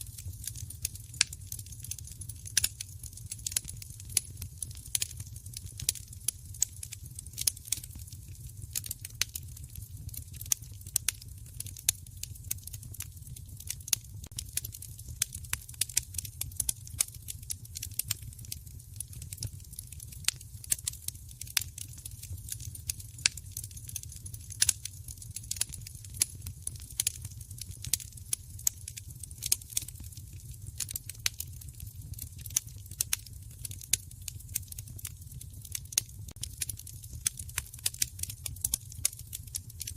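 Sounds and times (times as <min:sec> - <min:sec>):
fire popping and snapping: 0:00.0 - 0:39.9
wood fire crackling: 0:00.0 - 0:39.9.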